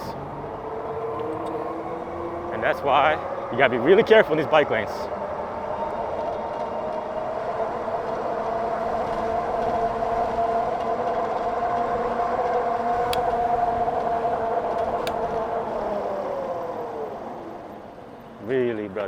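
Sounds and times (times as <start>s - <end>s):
wind and road noise: 0.0s - 19.0s
electric motor whining: 6.7s - 17.7s.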